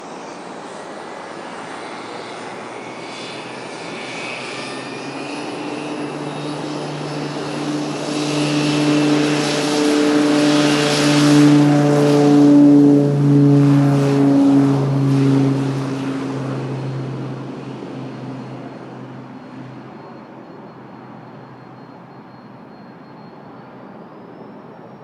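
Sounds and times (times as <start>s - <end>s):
propeller hum and turbine hiss: 0.0s - 25.0s.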